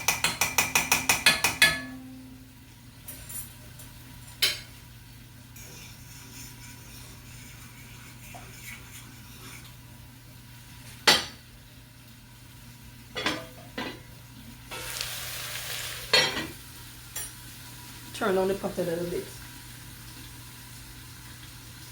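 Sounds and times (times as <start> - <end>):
utensil knocking against pot: 0.0 - 2.0.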